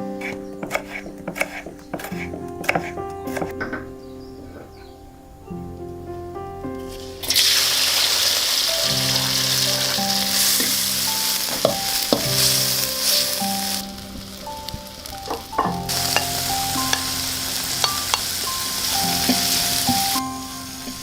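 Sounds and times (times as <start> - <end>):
food sizzling in hot oil: 6.8 - 21.0.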